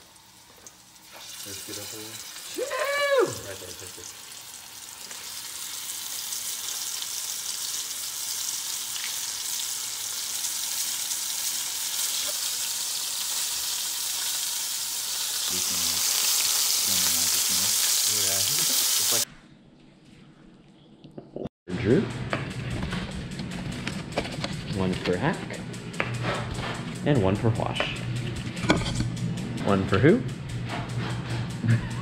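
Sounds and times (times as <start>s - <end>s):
fish frying in hot oil: 0.0s - 19.2s
person's vocal exclamation: 2.5s - 3.7s.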